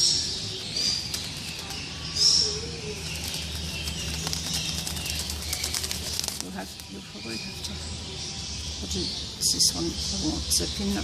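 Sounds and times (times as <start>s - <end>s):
bird chirping: 0.0s - 11.0s
bird wings flapping: 1.0s - 1.8s, 3.1s - 6.8s.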